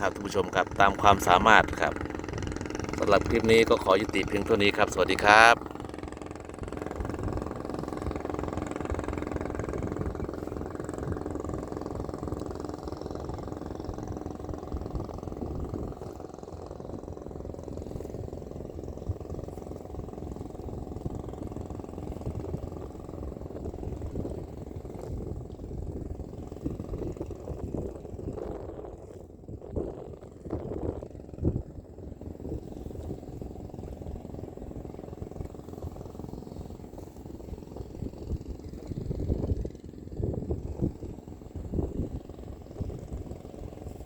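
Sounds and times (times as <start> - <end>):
engine humming: 0.0 - 23.6
low rumble: 0.0 - 44.0.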